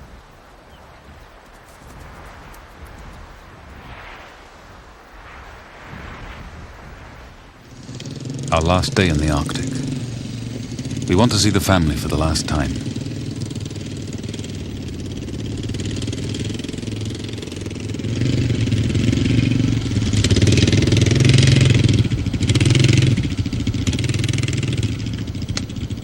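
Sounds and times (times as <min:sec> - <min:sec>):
vehicle engine running: 0:07.6 - 0:26.0.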